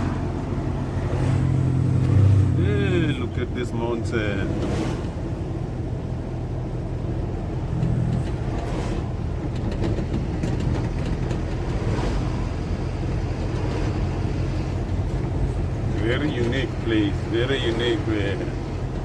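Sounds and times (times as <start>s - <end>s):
car engine rumble: 0.0s - 19.0s
road noise: 0.0s - 19.0s.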